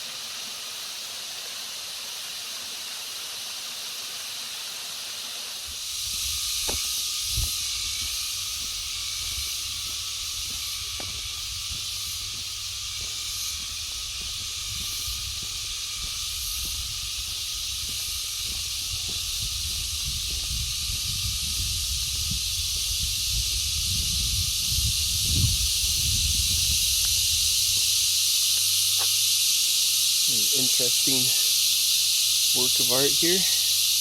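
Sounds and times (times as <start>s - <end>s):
insects droning: 0.0s - 34.0s
walking footsteps: 6.0s - 21.0s, 27.0s - 29.2s.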